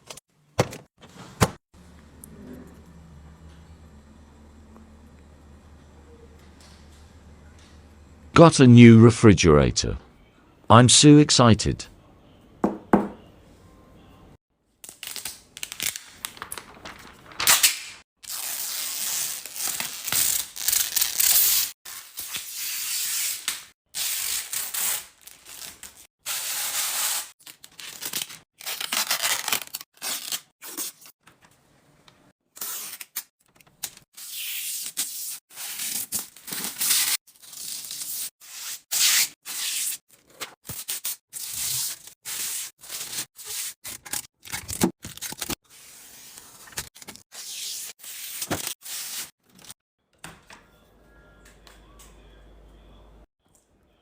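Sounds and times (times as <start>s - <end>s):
packaging crinkling and tearing: 27.4s - 30.9s.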